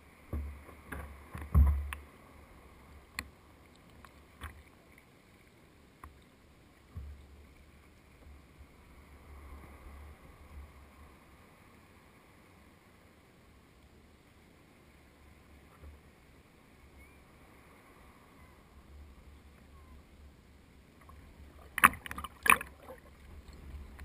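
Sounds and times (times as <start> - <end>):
sharp knocks on kayak: 0.3 - 1.9.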